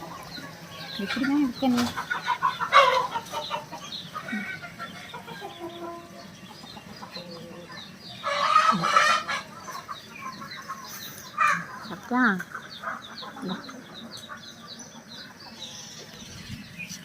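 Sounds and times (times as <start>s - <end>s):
chickens clucking: 0.0s - 17.0s
chicken squawk: 1.0s - 6.2s, 7.0s - 13.7s.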